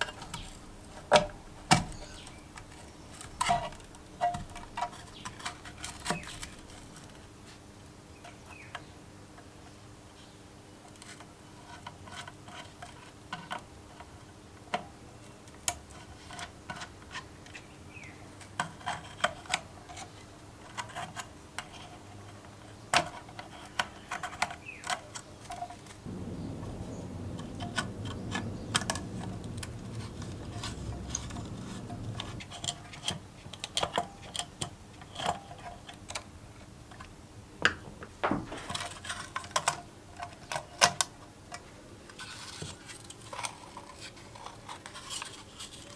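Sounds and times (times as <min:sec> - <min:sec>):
steady low noise: 0:26.1 - 0:32.7.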